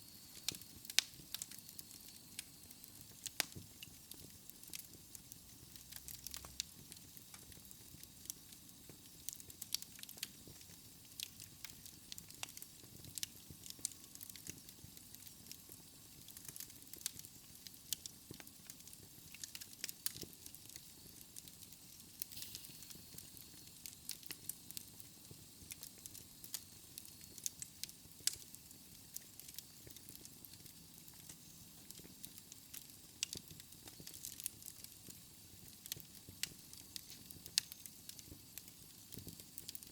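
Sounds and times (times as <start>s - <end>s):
logs crackling in fireplace: 0.0s - 39.9s
soft steady hiss: 0.0s - 39.9s
fire popping and snapping: 0.1s - 39.9s.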